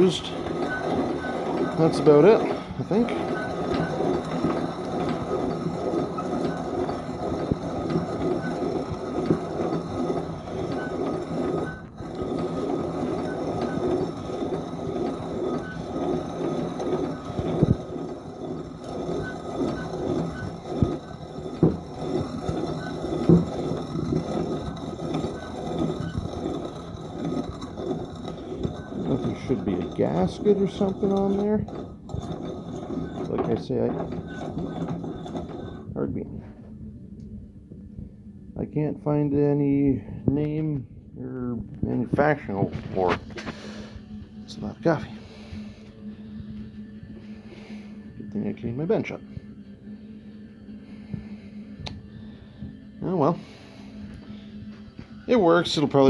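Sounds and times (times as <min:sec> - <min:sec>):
coffee grinder grinding beans: 0:00.0 - 0:36.0.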